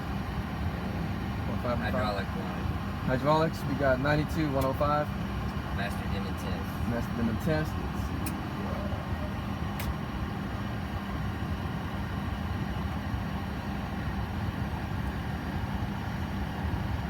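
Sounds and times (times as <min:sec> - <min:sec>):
air-conditioning running: 0:00.0 - 0:17.0
cockpit hum: 0:00.0 - 0:17.0
sharp switch click: 0:09.8 - 0:10.0.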